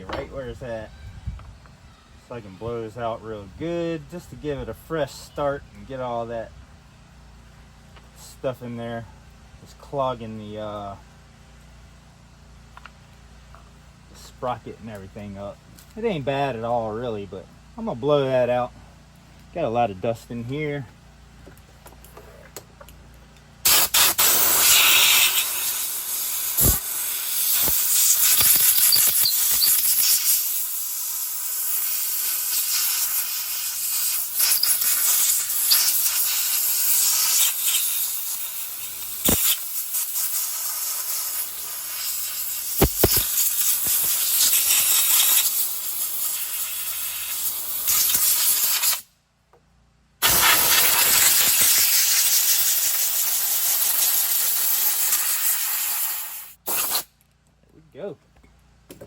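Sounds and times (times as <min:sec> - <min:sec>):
compressed air blow gun hissing: 0:23.6 - 0:49.1, 0:50.2 - 0:57.1.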